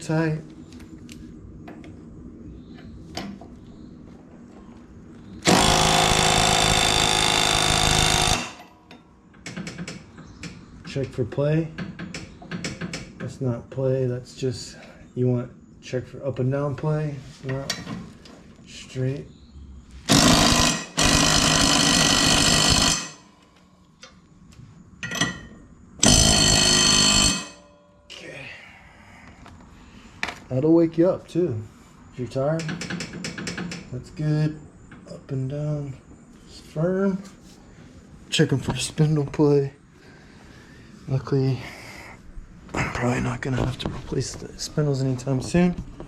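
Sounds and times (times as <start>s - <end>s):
impact wrench running: 5.4s - 8.7s, 20.1s - 23.3s, 26.0s - 27.6s.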